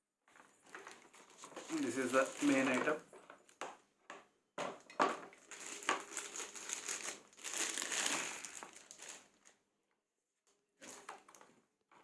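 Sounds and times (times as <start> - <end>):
plastic packaging crinkling: 0.4 - 3.6, 4.9 - 9.6.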